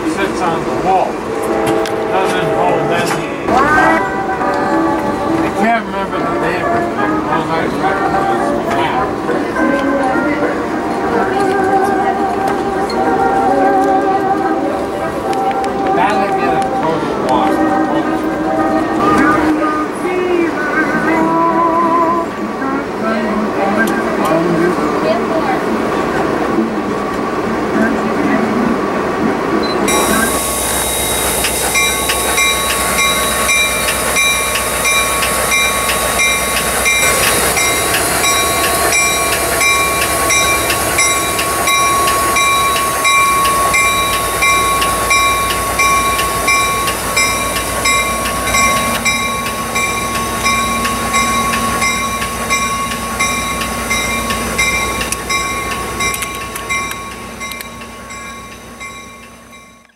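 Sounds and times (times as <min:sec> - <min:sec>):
train rumbling: 0:00.0 - 0:59.9
constant ringing tone: 0:29.6 - 0:59.9.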